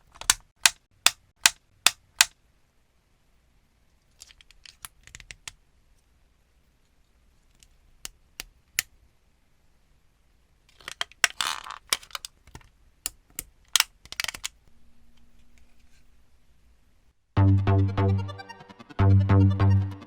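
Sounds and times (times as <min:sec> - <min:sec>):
plastic parts clicking: 0:00.0 - 0:02.4, 0:04.1 - 0:05.6, 0:07.5 - 0:09.0, 0:10.7 - 0:14.6
faint steady hum: 0:00.0 - 0:17.4.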